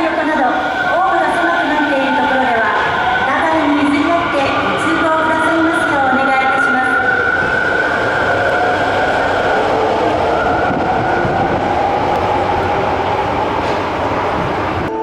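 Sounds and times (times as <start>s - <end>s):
train wheels on rails: 7.2s - 15.0s.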